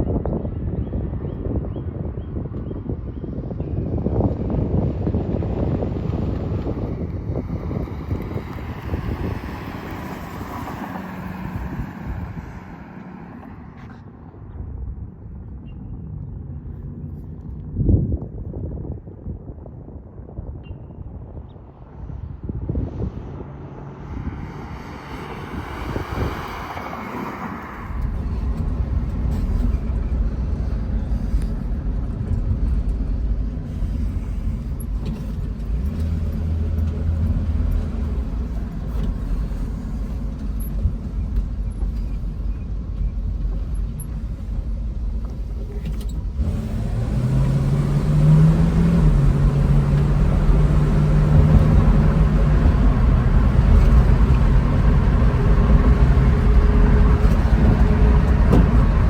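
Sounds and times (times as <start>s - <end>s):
car engine rumbling: 0.0s - 59.0s.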